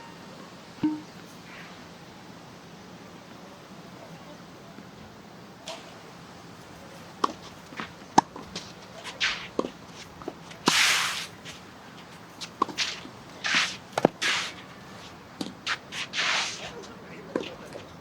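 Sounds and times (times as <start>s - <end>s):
tennis ball strikes and bounces: 0.8s - 1.2s, 7.2s - 10.8s, 12.4s - 14.4s
footsteps scuffing on court: 7.0s - 18.0s.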